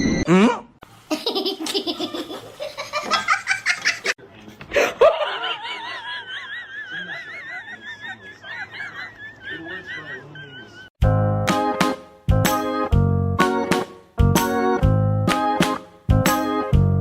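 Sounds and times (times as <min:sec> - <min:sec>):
laughter in quick bursts: 0:01.1 - 0:11.0.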